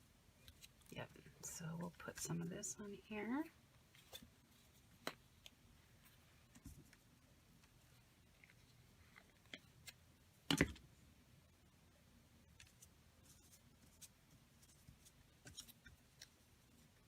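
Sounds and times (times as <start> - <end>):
paper rustling: 12.6 - 16.9.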